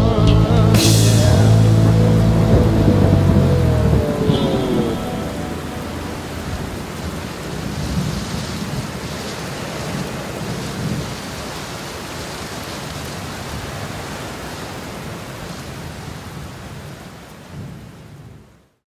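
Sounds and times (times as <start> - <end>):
low thunder: 0.5 - 9.1
steady rain: 0.8 - 18.8.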